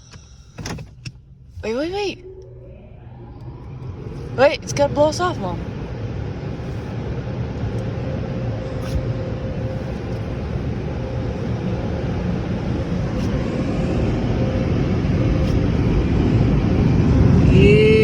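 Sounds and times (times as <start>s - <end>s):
faint hum: 0.0s - 18.0s
dryer blowers rushing air: 1.6s - 18.0s.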